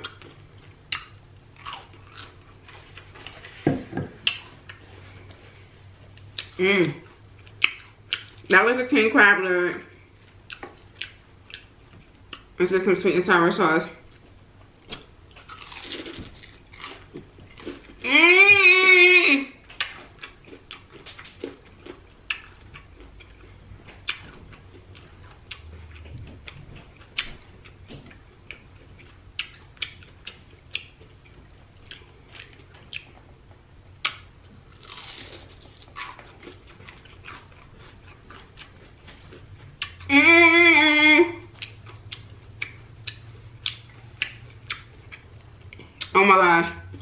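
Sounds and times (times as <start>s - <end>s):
crisp crunches while chewing: 14.8s - 18.0s, 34.0s - 40.0s
person humming mmm: 18.0s - 19.6s, 40.0s - 41.5s.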